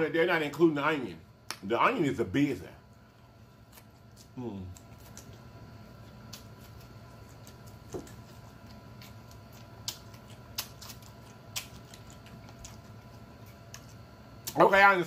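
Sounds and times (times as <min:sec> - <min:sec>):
person chewing food: 0:03.5 - 0:14.6.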